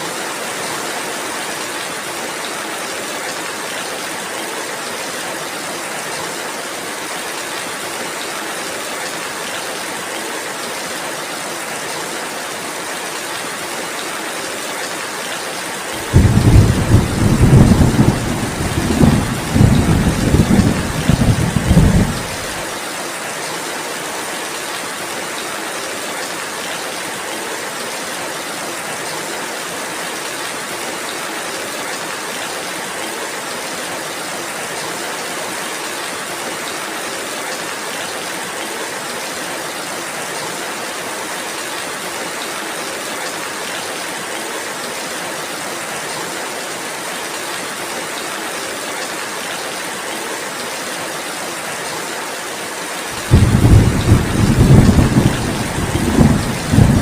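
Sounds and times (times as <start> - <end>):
steady rain hissing: 0.0 - 57.0
thunder rumble: 16.0 - 22.6, 53.2 - 57.0.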